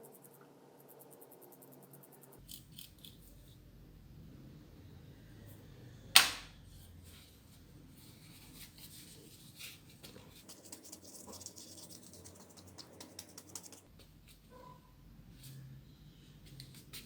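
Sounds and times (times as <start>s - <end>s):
light scratches on plastic: 8.0s - 14.4s.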